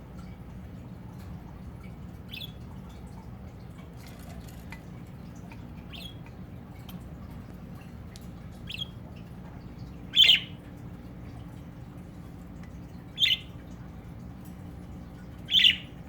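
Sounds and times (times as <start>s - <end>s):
steady low hum: 0.0s - 16.0s
faint bird chirp: 2.2s - 3.0s, 5.3s - 6.4s, 8.5s - 10.7s, 12.9s - 13.8s, 15.1s - 16.0s
budgie squawks: 5.9s - 6.2s, 15.5s - 15.9s.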